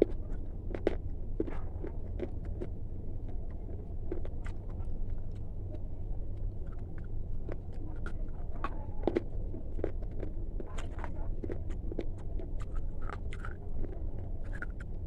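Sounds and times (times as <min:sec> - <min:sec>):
crisp crunches and crackles: 0:06.6 - 0:15.0.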